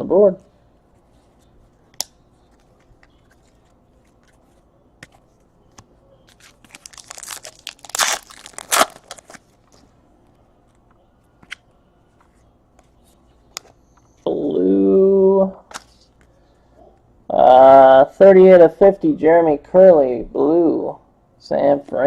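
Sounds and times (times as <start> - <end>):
plastic wrapper ripping: 6.3 - 9.5
plastic wrapper crinkling: 6.3 - 9.9.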